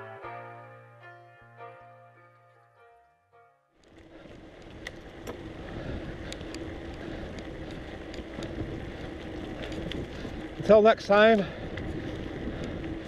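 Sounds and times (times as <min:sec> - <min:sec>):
bike tyre and wind noise: 0:03.8 - 0:13.0
small bike clicks: 0:03.8 - 0:13.0.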